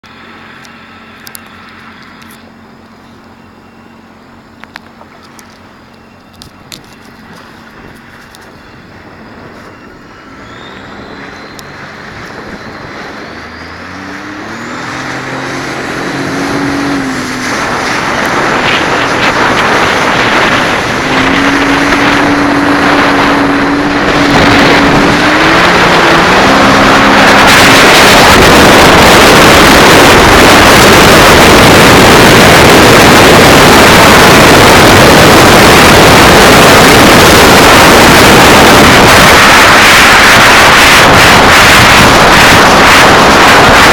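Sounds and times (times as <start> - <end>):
jet ski engine revving: 7.2 - 43.9
wind and spray hitting microphone: 11.0 - 43.9.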